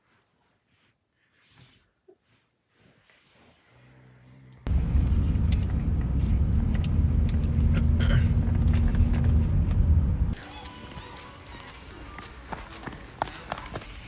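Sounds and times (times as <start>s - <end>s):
faint hum: 4.7s - 10.4s
vehicle engine rumbling: 4.7s - 10.4s.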